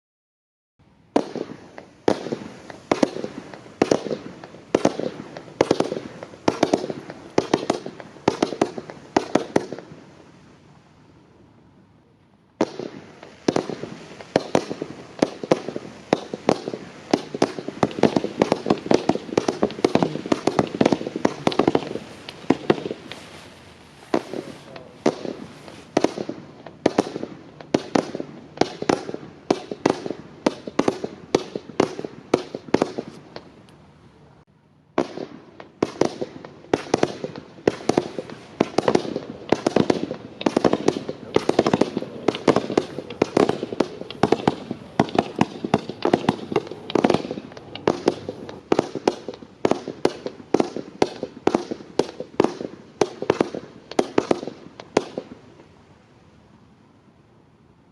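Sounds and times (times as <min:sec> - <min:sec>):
fireworks launch shots: 0:01.1 - 0:10.6, 0:12.5 - 0:33.6, 0:34.9 - 0:55.7.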